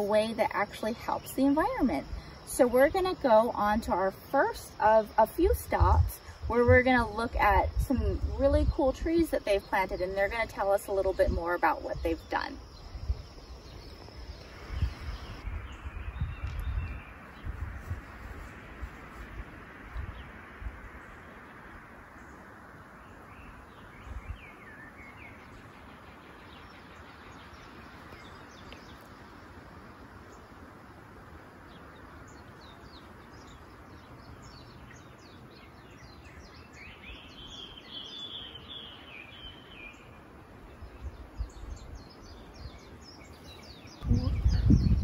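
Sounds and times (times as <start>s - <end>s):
steady outdoor hiss: 0.0s - 45.0s
birds chirping and calling: 40.8s - 45.0s.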